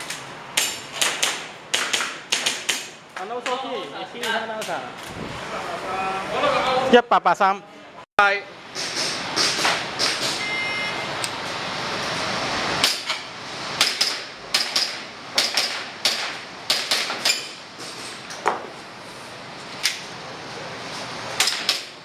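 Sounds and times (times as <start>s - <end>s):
shot timer beeps: 10.4s - 11.0s.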